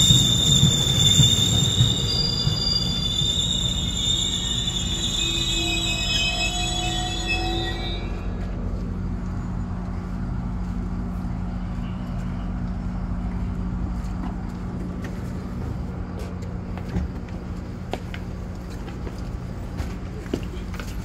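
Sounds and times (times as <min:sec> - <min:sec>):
train low hum: 0:00.0 - 0:21.0.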